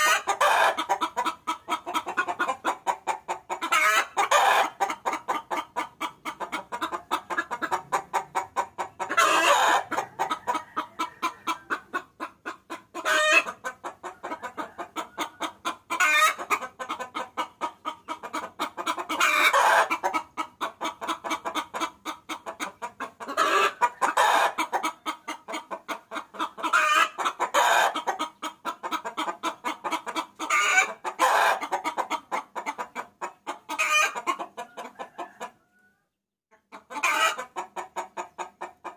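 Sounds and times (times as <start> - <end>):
hen clucking: 0.0 - 38.9
hen drawn-out call: 7.5 - 12.0.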